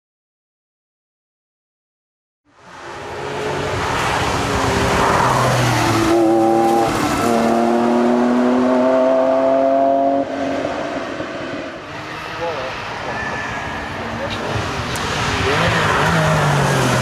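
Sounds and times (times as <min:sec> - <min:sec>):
rally car engine accelerating: 0:02.9 - 0:12.6, 0:14.1 - 0:17.0.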